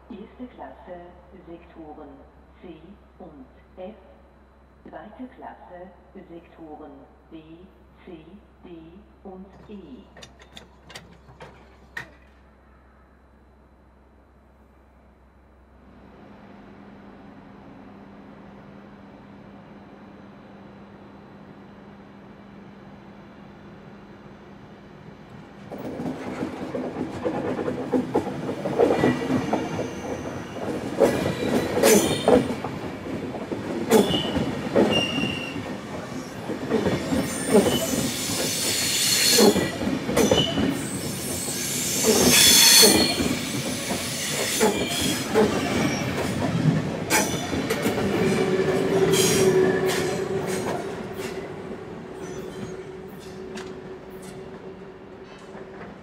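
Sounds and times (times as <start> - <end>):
train wheels clacking: 25.7 - 51.6
high wheel squeal: 34.0 - 35.6, 37.0 - 46.2, 48.3 - 51.5, 52.2 - 54.4.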